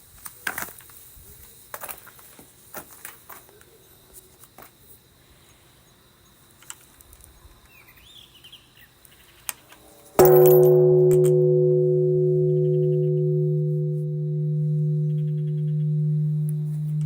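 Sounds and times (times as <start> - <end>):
temple bell ringing: 10.0 - 17.0.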